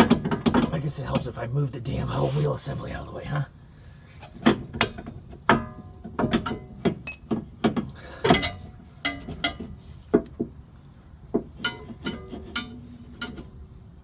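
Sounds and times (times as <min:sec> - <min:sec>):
metallic clanks and knocks: 0:00.0 - 0:01.3, 0:04.3 - 0:10.6, 0:11.3 - 0:13.6.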